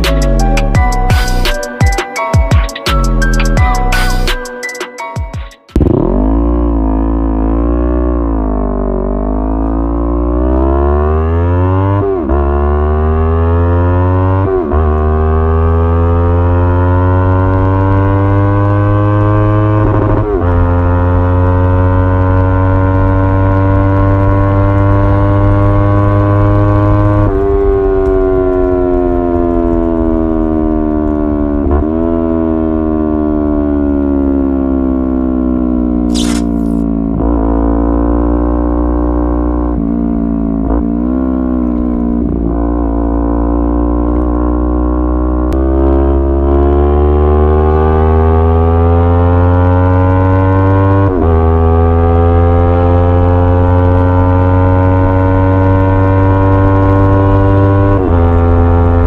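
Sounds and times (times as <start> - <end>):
motorcycle engine running: 5.7 - 9.1
short hiss: 36.1 - 36.8.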